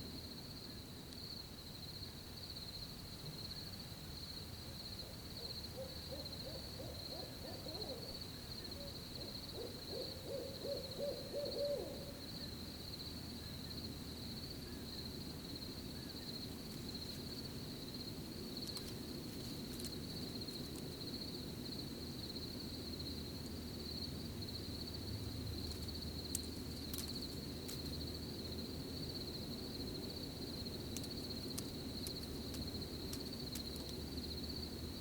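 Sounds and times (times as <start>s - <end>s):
crickets chirring: 0.0s - 35.0s
owl hooting: 5.0s - 12.5s.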